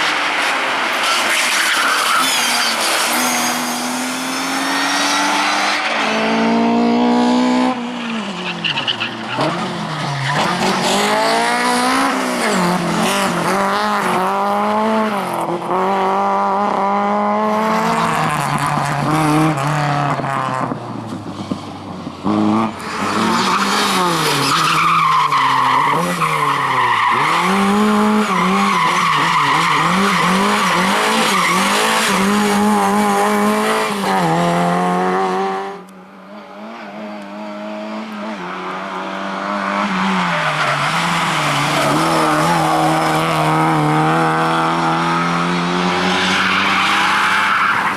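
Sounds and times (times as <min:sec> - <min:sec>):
tyres squealing and skidding: 0:00.9 - 0:06.2, 0:07.8 - 0:12.8, 0:22.8 - 0:32.7, 0:39.6 - 0:43.9, 0:44.8 - 0:47.9
rally car engine revving: 0:02.1 - 0:20.8, 0:22.2 - 0:35.9, 0:36.5 - 0:47.9.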